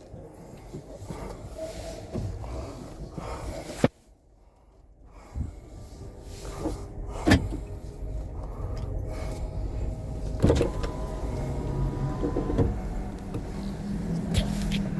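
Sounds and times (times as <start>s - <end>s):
vehicle engine running: 5.2s - 14.9s.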